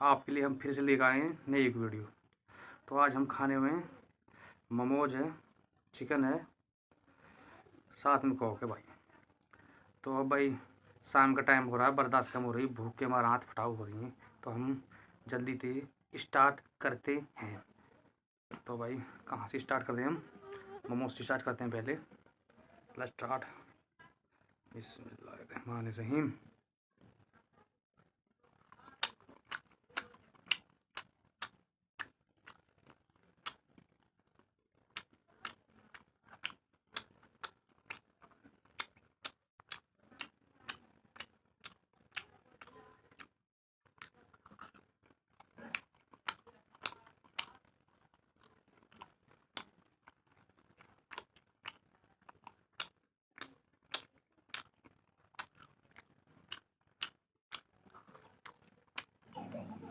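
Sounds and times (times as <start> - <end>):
person chewing with mouth smacks: 28.6 - 34.0, 34.9 - 43.3, 43.9 - 59.9.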